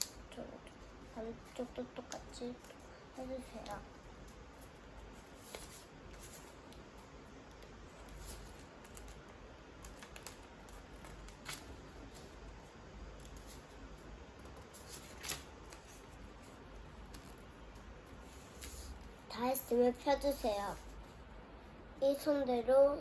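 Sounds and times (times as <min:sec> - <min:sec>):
faint steady hum: 0:00.0 - 0:23.0
paper crackles: 0:01.5 - 0:19.2
paper crinkling and rustling: 0:02.4 - 0:19.2.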